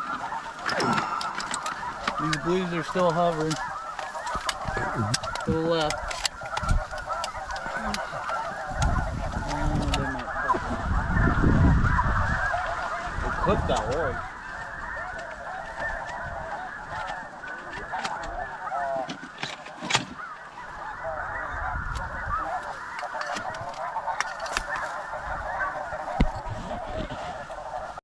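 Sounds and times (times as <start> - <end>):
snow geese honking: 0.0 - 28.0.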